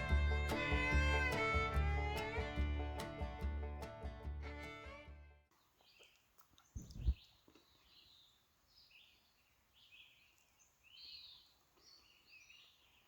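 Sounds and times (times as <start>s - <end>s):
faint bird chirping: 5.6s - 13.0s.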